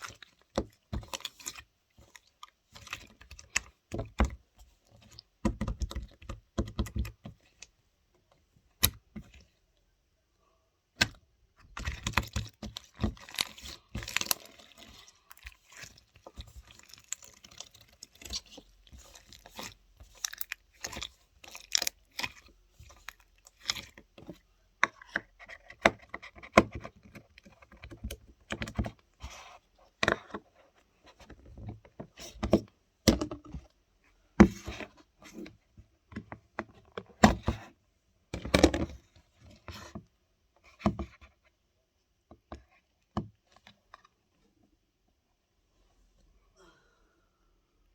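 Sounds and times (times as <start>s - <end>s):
hands squishing slime: 0.0s - 7.7s, 11.0s - 30.4s.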